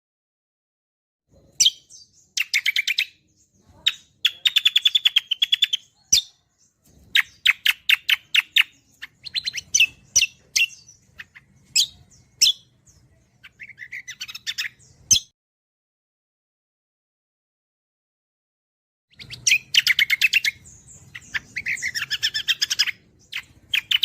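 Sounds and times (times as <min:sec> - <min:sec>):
bird singing chirps and trills: 0:01.3 - 0:15.4, 0:19.1 - 0:24.0.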